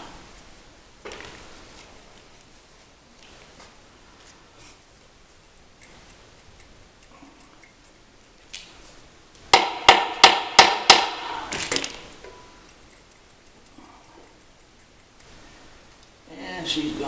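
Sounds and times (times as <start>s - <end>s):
hammer ringing on metal: 9.6s - 11.5s.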